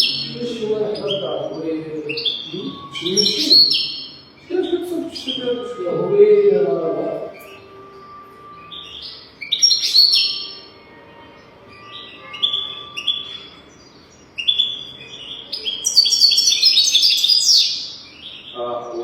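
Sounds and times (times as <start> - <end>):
goldfinch twittering: 0.0 - 7.8, 8.6 - 10.7, 11.7 - 19.0.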